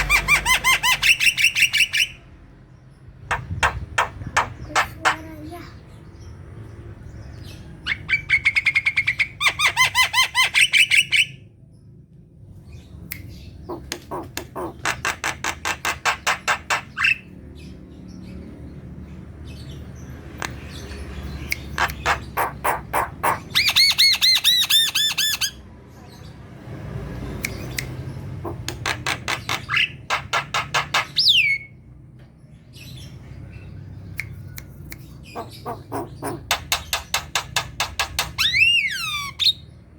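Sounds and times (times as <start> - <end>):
bird singing harsh repeated notes: 0.0 - 2.2, 13.0 - 17.3, 19.7 - 25.6, 27.4 - 31.8, 33.0 - 39.8.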